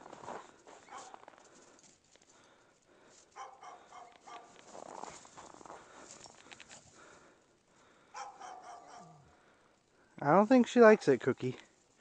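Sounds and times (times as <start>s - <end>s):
rustling: 0.0s - 7.4s
faint dog barks: 0.8s - 1.3s, 3.4s - 4.6s, 8.1s - 9.4s.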